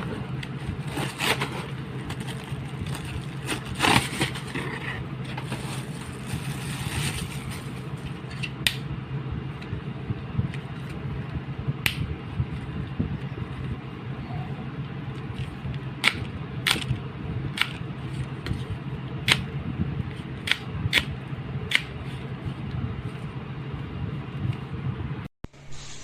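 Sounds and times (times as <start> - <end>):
handling scraping and rustling: 0.0 - 8.5
steady low hum: 0.0 - 26.0.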